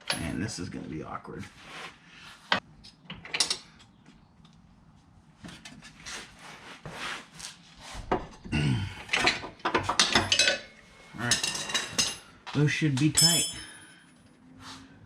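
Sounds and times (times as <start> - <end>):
person grunting: 8.5 - 9.1
metal clinks: 13.0 - 14.4.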